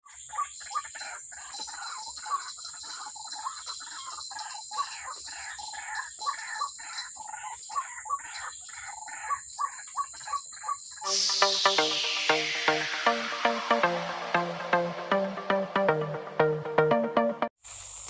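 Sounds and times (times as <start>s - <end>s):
steady high hiss: 11.0s - 15.4s.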